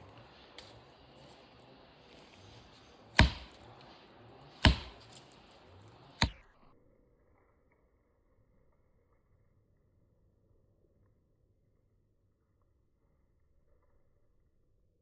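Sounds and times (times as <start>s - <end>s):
wedge being struck: 3.2s - 3.6s, 4.6s - 5.2s.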